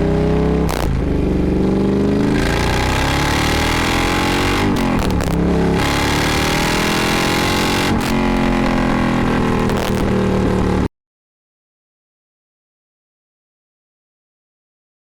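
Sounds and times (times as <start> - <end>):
motorcycle engine accelerating hard: 0.0 - 10.9.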